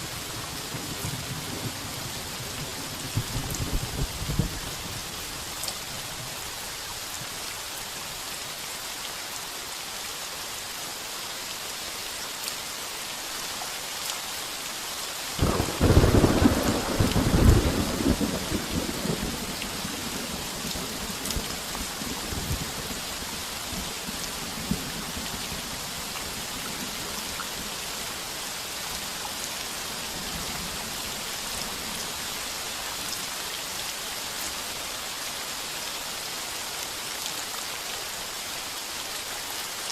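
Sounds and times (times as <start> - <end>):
heavy rain on a tin roof: 0.0 - 39.9
thunder rumbling: 15.4 - 19.6.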